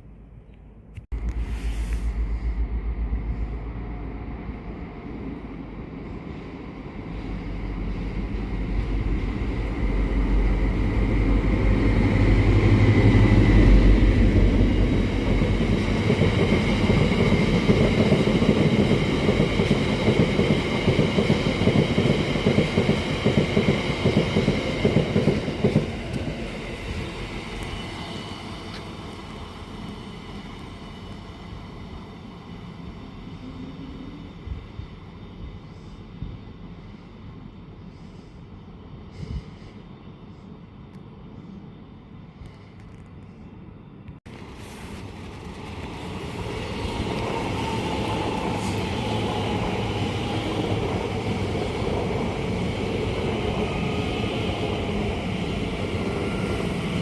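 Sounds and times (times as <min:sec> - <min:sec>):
steady high whine: 0:01.0 - 0:20.0
train rumbling past: 0:01.1 - 0:57.0.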